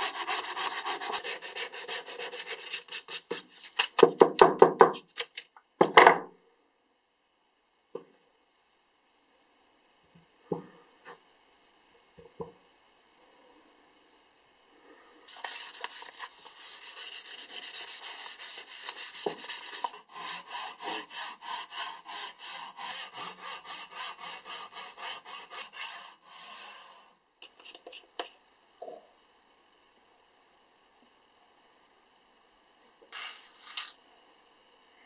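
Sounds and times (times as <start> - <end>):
hand saw cutting wood: 0.0 - 3.4, 16.5 - 26.9.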